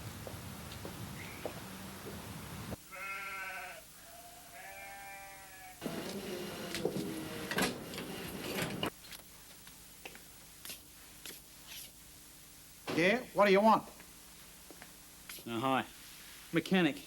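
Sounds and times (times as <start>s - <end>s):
wavering bleats: 2.9s - 5.8s.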